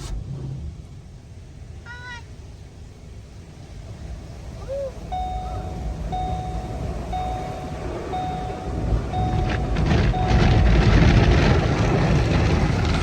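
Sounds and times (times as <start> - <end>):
low machine rumble: 3.2 - 13.0
electronic beeps: 5.0 - 11.6.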